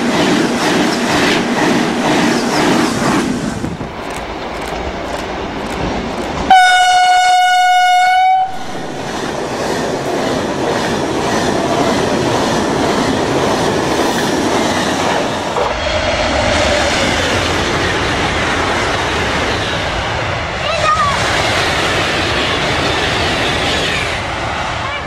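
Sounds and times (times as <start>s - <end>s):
another train passing: 0.0s - 25.0s
train rushing past: 0.0s - 25.0s
train horn: 6.5s - 8.6s.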